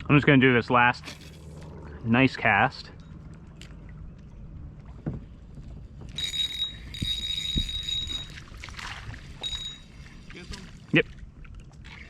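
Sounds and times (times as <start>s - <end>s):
fishing reel whirring: 6.1s - 8.5s, 9.4s - 9.9s.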